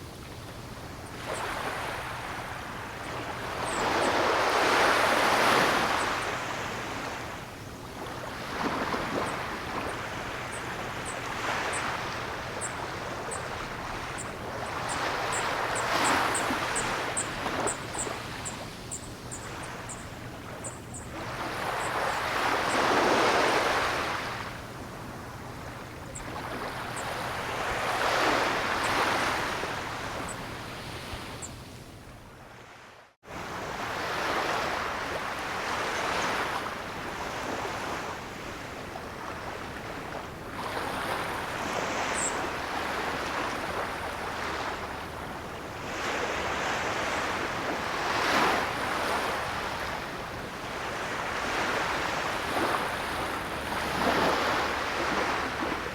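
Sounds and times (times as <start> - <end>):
ocean waves breaking: 1.0 - 31.4, 33.4 - 55.9.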